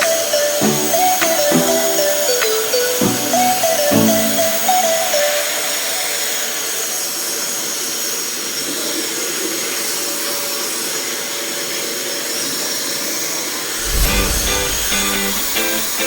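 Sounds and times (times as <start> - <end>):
plucked guitar music: 0.0 - 5.0
steady rushing hiss: 13.8 - 16.0.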